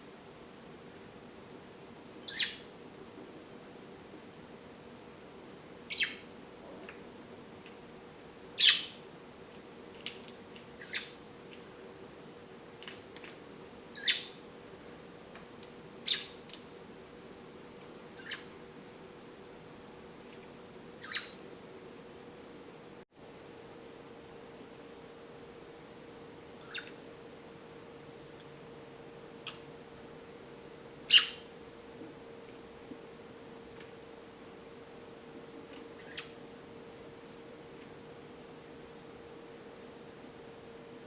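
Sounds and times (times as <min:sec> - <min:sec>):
faint steady hum: 0:00.0 - 0:41.0
robin chirping: 0:02.2 - 0:02.8, 0:05.9 - 0:06.3, 0:08.6 - 0:09.0, 0:10.8 - 0:11.3, 0:13.9 - 0:14.4, 0:16.0 - 0:16.4, 0:18.2 - 0:18.6, 0:21.0 - 0:21.4, 0:26.6 - 0:27.1, 0:31.1 - 0:31.5, 0:36.0 - 0:36.5.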